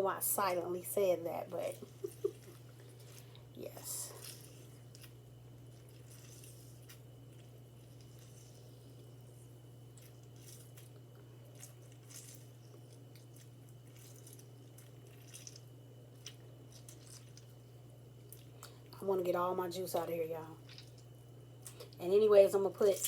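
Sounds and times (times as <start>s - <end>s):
steady low hum: 0.0s - 23.0s
lemon squishing: 1.6s - 18.8s, 20.6s - 22.0s
small drips and clicks: 20.6s - 22.0s.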